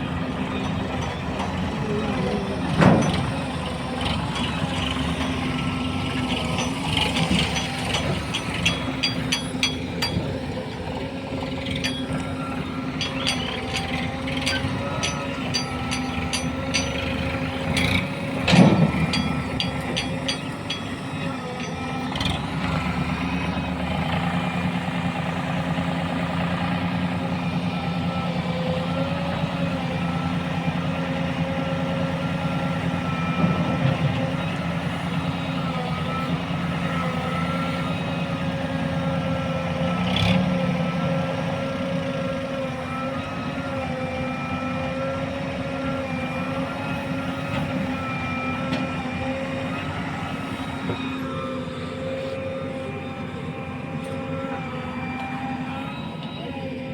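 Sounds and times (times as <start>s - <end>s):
diesel machinery engine running: 0.0s - 56.9s
loud metal clank: 2.8s - 3.4s, 13.0s - 22.1s.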